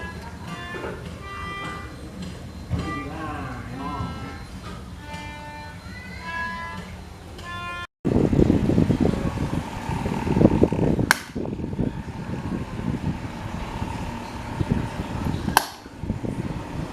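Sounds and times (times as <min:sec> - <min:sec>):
electric fan running: 0:00.0 - 0:16.9
fan switch clicks: 0:10.6 - 0:11.6, 0:14.4 - 0:16.0.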